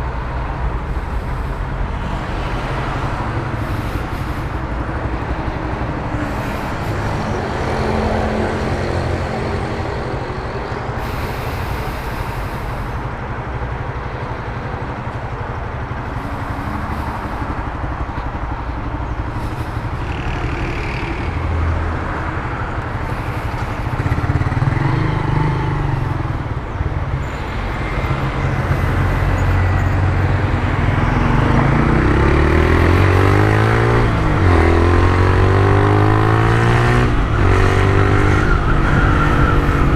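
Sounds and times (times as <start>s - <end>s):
traffic noise: 0.0s - 39.9s
wind noise: 36.4s - 39.9s.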